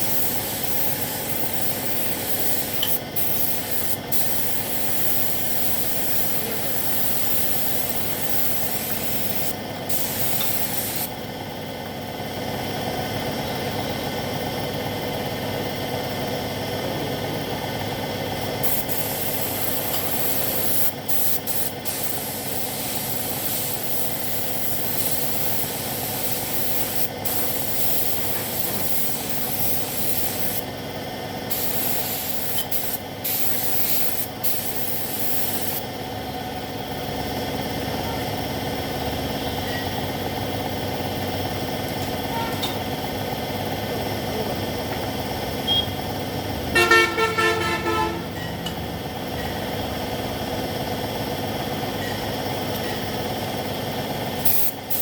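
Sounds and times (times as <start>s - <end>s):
paint spray gun hissing: 0.0s - 11.2s, 18.6s - 30.7s, 31.5s - 35.9s, 54.4s - 55.0s
steady machine hum: 0.0s - 55.0s.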